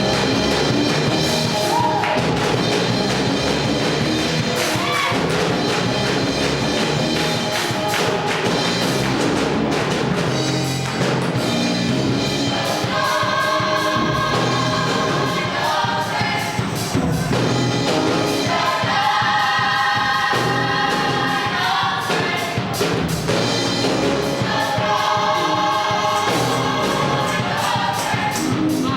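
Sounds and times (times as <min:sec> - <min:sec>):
band with steady drum beat: 0:00.0 - 0:28.9
voices singing in harmony: 0:12.2 - 0:28.9.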